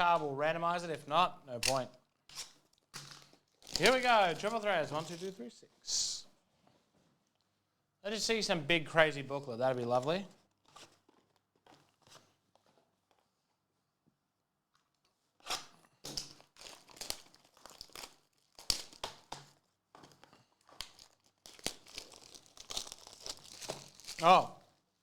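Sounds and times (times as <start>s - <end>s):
card pack wrapping tearing: 1.6s - 5.4s, 15.4s - 19.3s, 20.7s - 24.5s.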